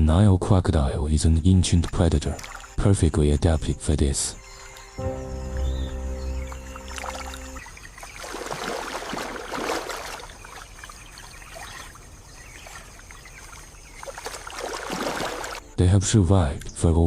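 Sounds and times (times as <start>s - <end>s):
river water splashing and rushing: 5.6s - 15.6s.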